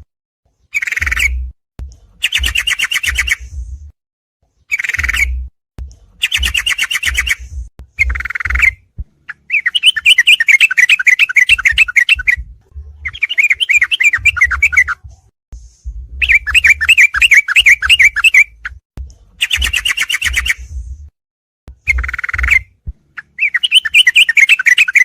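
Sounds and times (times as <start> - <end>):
bird chattering chirps: 0.7 - 1.4, 2.2 - 3.4, 4.7 - 5.4, 6.2 - 7.4, 8.0 - 12.4, 13.0 - 14.9, 16.2 - 18.6, 21.9 - 25.0.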